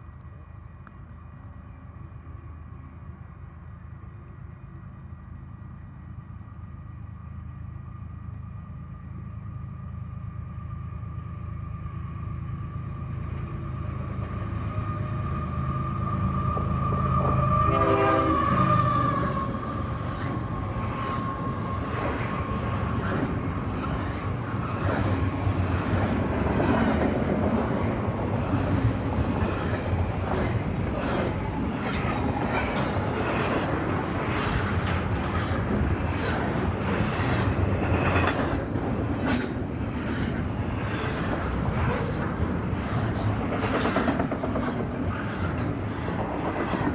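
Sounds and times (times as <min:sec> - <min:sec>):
diesel locomotive engine drone: 0:00.0 - 0:46.9
train horn: 0:15.0 - 0:19.7
train cars rattling: 0:16.6 - 0:46.9
wheels clicking over rail joints: 0:24.7 - 0:46.9.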